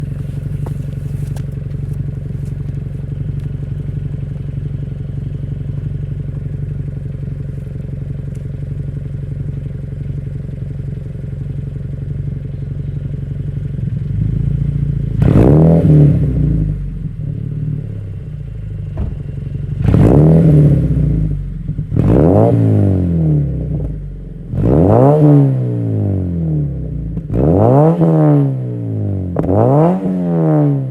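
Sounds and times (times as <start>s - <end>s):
car engine idling: 0.0s - 24.8s.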